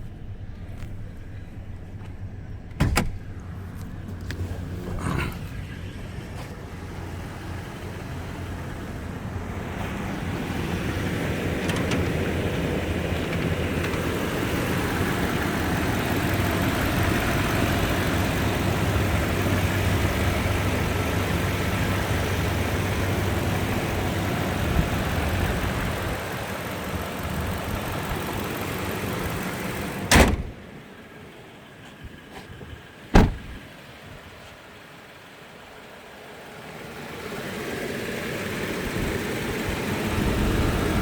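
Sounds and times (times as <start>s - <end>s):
engine idling: 0.0s - 41.0s
loud thud: 2.8s - 3.3s, 30.1s - 30.6s, 33.1s - 33.6s.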